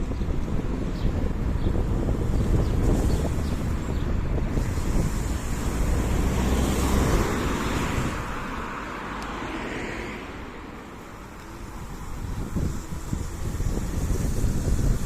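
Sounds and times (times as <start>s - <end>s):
wind buffeting microphone: 0.0s - 9.4s, 10.9s - 15.0s
electric scooter road rumble: 0.0s - 15.0s.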